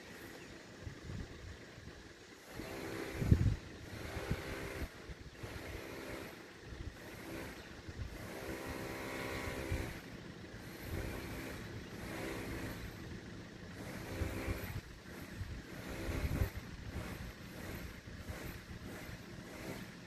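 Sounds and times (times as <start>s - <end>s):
wind on microphone: 3.0s - 5.7s, 14.2s - 19.0s.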